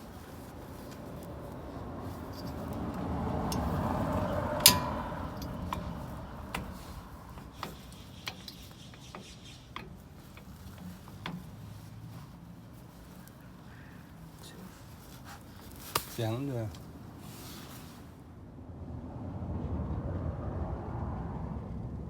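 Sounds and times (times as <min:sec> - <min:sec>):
metal tools clinking: 0:00.8 - 0:11.5.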